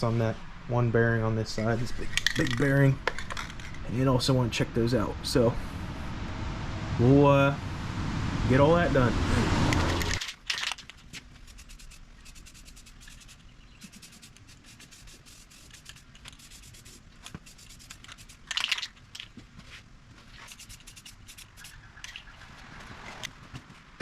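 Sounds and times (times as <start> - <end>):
scraping and rubbing handling noises: 1.6 - 4.0, 9.7 - 24.0.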